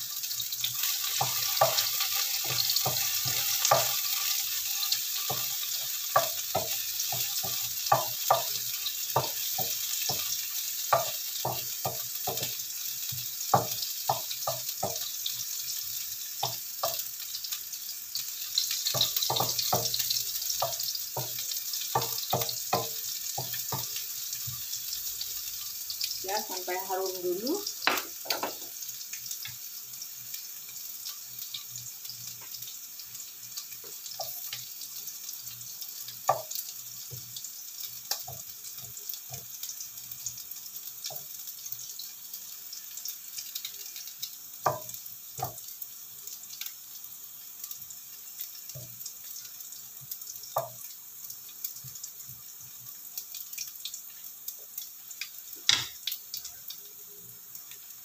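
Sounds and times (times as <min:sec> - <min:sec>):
meat sizzling in a frying pan: 0:00.0 - 0:58.0
spatula knocking on pan: 0:01.2 - 0:04.0, 0:05.3 - 0:08.6, 0:09.2 - 0:15.0, 0:16.4 - 0:17.1, 0:18.8 - 0:24.6, 0:27.8 - 0:28.8, 0:44.6 - 0:45.6, 0:55.7 - 0:56.0.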